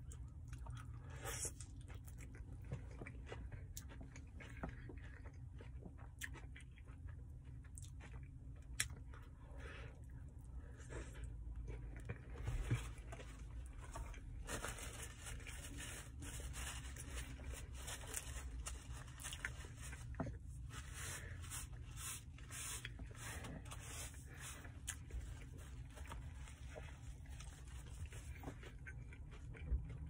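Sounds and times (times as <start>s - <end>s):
wet chewing: 0.0s - 9.4s
steady low hum: 0.0s - 30.0s.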